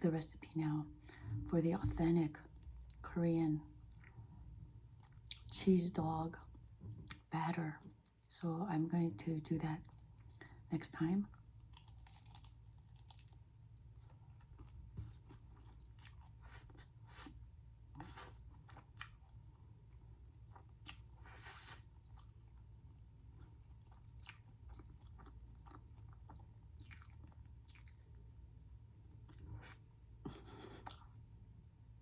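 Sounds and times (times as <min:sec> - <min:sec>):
close-up chewing: 0:11.3 - 0:28.3.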